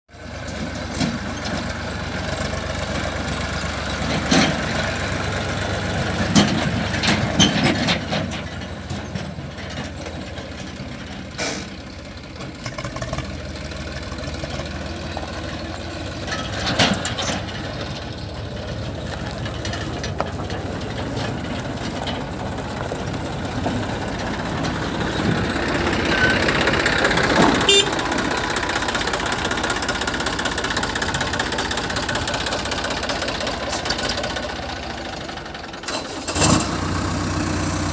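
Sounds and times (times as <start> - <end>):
heavy diesel engine running: 0.1 - 37.9.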